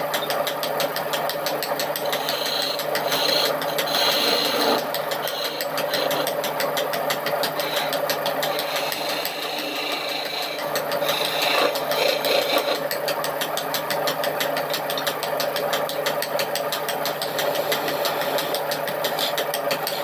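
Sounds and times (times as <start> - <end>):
power tool motor running: 1.9 - 6.5, 7.3 - 12.9, 17.3 - 20.0.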